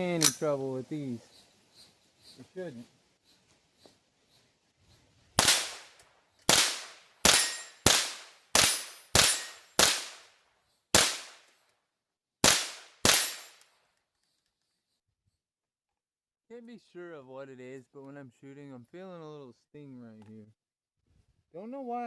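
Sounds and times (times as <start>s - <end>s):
rifle shots cracking: 5.4s - 10.3s, 10.9s - 11.5s, 12.4s - 13.6s.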